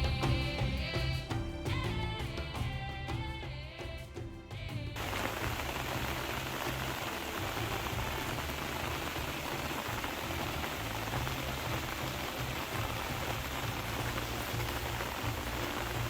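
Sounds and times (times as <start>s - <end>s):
low shifting rumble: 5.0s - 16.0s
steady rain falling: 5.0s - 16.0s.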